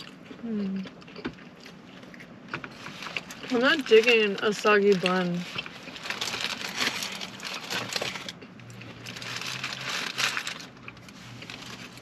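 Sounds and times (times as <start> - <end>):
person chewing food: 0.0 - 3.5.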